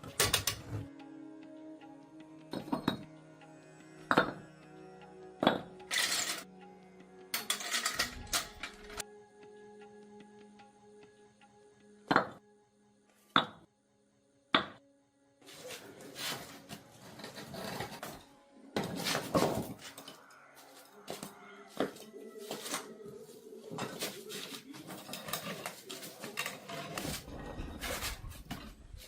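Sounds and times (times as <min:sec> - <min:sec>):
faint background music: 0:00.0 - 0:29.0
metal tools clinking: 0:05.9 - 0:06.4, 0:07.4 - 0:09.0, 0:24.8 - 0:29.0
scraping and handling noise: 0:05.9 - 0:06.4, 0:07.4 - 0:09.0, 0:15.5 - 0:29.0.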